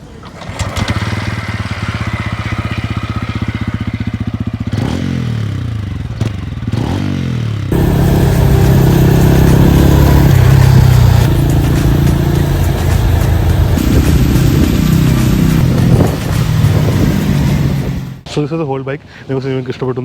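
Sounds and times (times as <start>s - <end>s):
motorcycle engine idling and revving: 0.0s - 18.2s
loud steady drone: 7.7s - 18.2s.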